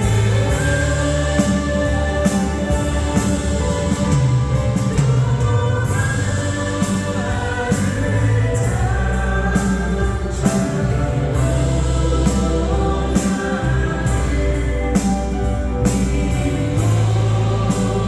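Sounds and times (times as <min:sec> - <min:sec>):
band accompaniment: 0:00.0 - 0:18.0
worship song singing: 0:00.0 - 0:18.0.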